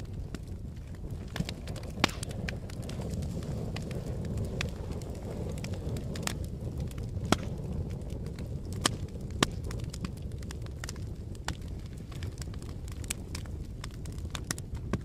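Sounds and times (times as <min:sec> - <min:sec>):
fire crackling and popping: 0:00.0 - 0:15.0.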